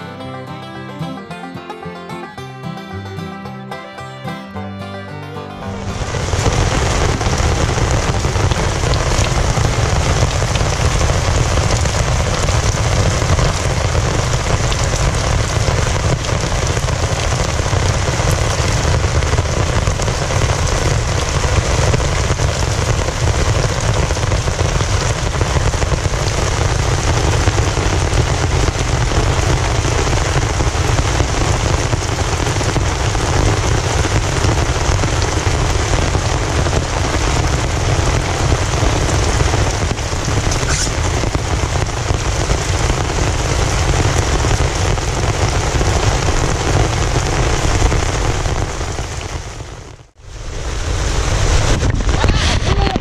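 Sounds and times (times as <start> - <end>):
heavy rain: 0.0 - 4.2, 5.1 - 53.0
deep low rumble: 5.6 - 31.9.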